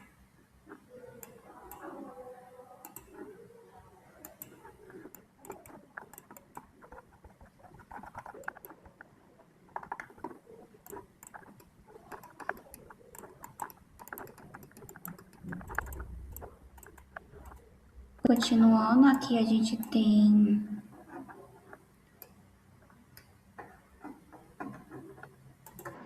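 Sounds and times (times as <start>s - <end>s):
keyboard keys tapping: 4.2s - 9.1s, 9.7s - 20.1s, 21.0s - 26.0s.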